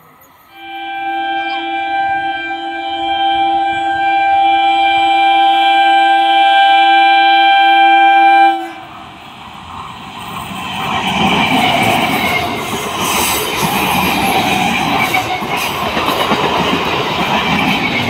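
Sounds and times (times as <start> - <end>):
train horn: 0.5 - 9.0
train wheels clattering on rails: 8.8 - 18.0.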